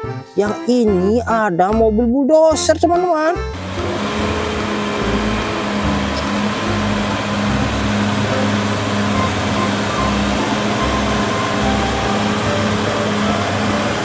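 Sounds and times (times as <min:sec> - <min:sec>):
bulldozer engine rumbling: 0:03.4 - 0:14.0.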